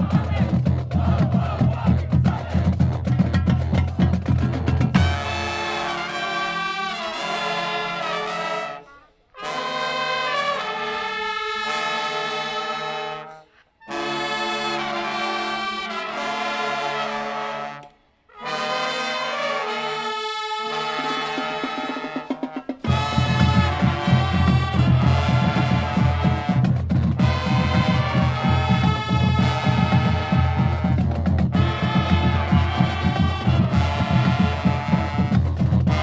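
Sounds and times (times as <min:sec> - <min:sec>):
drums playing: 0:00.0 - 0:05.7, 0:21.4 - 0:36.0
brass band playing chords: 0:00.0 - 0:36.0.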